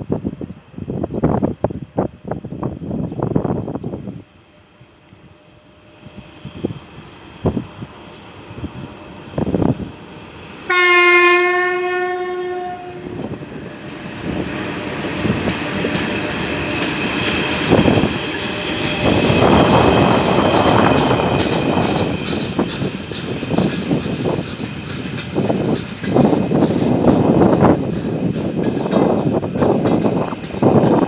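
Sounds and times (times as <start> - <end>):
locomotive horn: 10.7 - 13.4
train wheels clattering over rails: 13.1 - 31.0.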